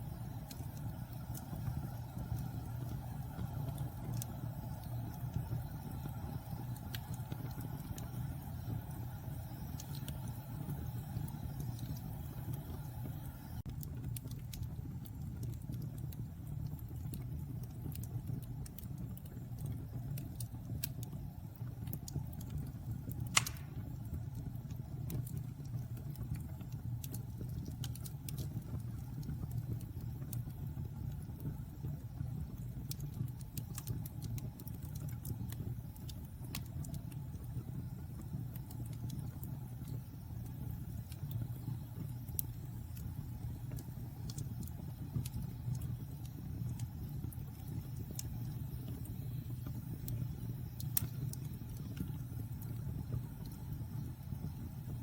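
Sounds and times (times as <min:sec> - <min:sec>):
fire rushing in fireplace: 0:00.0 - 0:16.0, 0:16.7 - 0:55.0
fire crackling: 0:00.0 - 0:55.0
loud pop of fire: 0:23.2 - 0:24.0.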